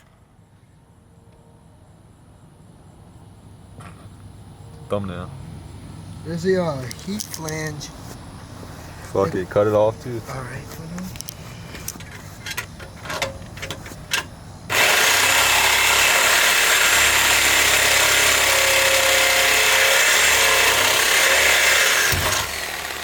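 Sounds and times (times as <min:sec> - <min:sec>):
power tool cutting steel pipe: 0:14.7 - 0:23.0.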